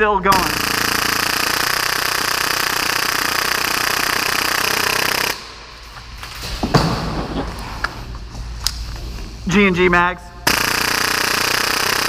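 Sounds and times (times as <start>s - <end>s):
airsoft pistol rattling burst: 0.3s - 5.4s, 10.5s - 12.0s.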